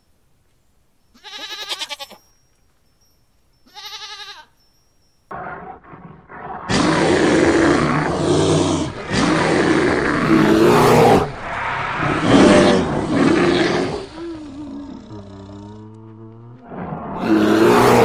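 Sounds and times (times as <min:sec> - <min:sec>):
short wavering bleat: 0:01.2 - 0:02.2, 0:03.7 - 0:04.5
bear roaring: 0:05.3 - 0:18.0
rough grunts: 0:05.4 - 0:18.0.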